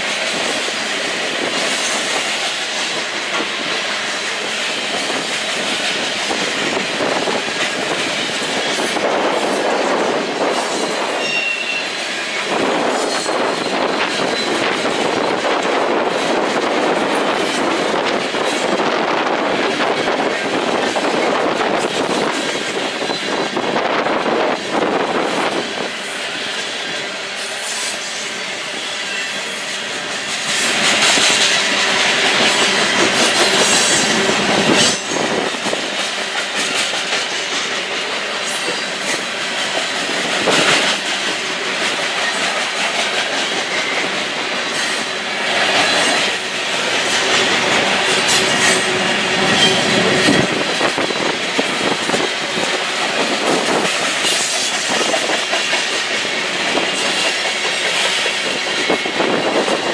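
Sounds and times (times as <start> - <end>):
freight cars rumbling on rails: 0.0 - 59.9
high wheel squeal: 10.6 - 14.7, 26.4 - 30.6, 45.8 - 51.1.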